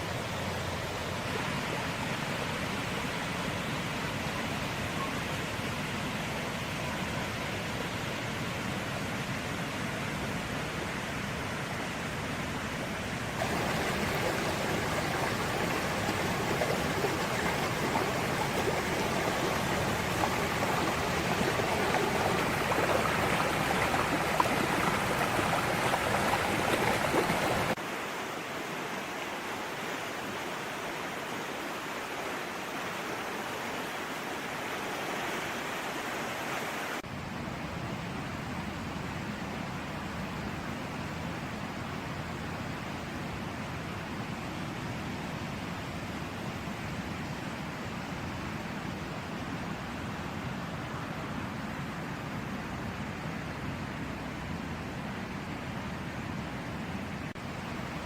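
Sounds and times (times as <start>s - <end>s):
running water rushing: 13.3s - 58.0s.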